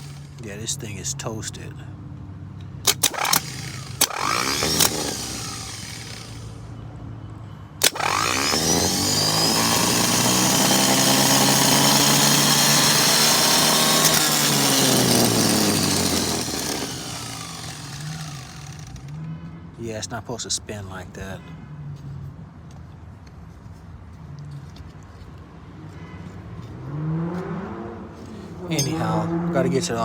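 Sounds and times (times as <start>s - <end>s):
starter motor whining: 0.0s - 0.6s, 2.8s - 6.8s, 7.8s - 19.2s.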